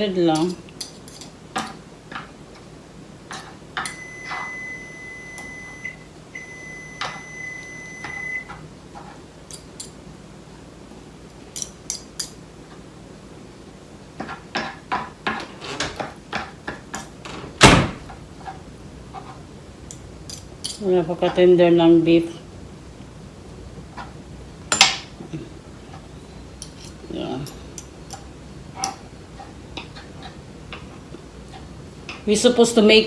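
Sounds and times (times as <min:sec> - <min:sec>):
appliance beeping: 0:03.8 - 0:08.6.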